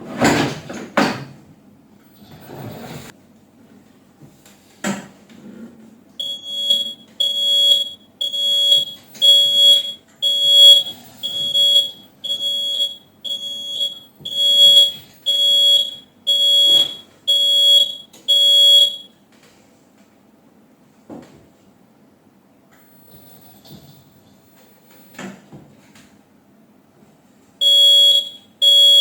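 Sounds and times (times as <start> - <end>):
electronic buzzer beeping: 6.2 - 19.1, 22.8 - 25.3, 27.6 - 29.0.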